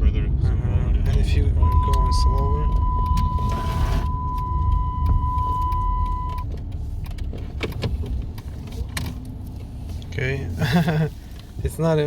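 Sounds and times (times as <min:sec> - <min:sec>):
car rolling low rumble: 0:00.0 - 0:12.0
steady high beep: 0:01.6 - 0:06.4.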